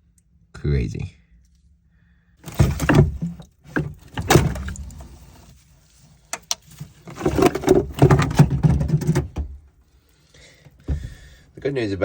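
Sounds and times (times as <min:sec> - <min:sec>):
objects knocking and scraping: 0:02.4 - 0:09.7, 0:10.7 - 0:11.4.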